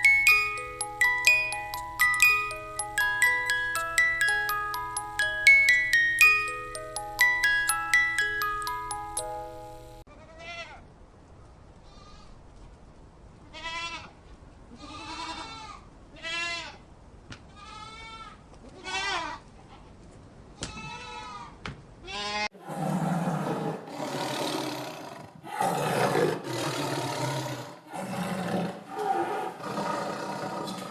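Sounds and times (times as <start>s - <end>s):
chiming tune: 0.0s - 10.0s
large animal roaring: 22.6s - 30.9s.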